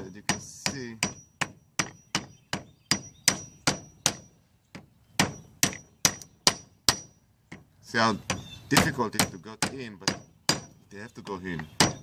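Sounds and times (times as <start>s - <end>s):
hammer knocking on metal: 0.2s - 7.7s.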